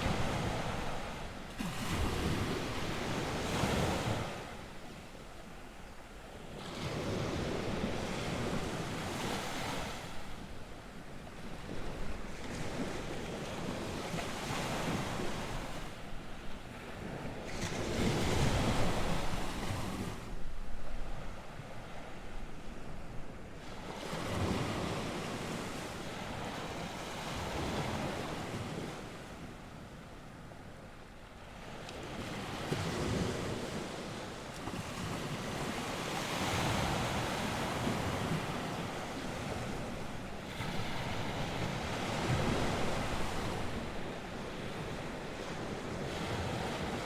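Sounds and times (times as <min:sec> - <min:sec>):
waves breaking: 0:00.0 - 0:29.2, 0:31.7 - 0:47.0
wind on microphone: 0:06.6 - 0:29.5.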